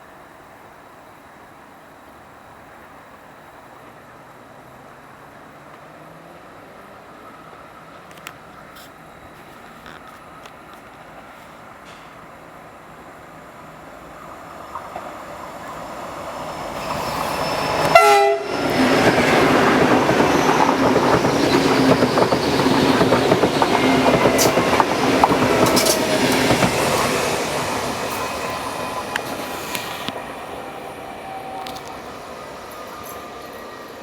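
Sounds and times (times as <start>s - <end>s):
train wheels clattering on track: 9.4s - 12.4s, 14.6s - 34.0s
train horn blast: 17.5s - 18.8s.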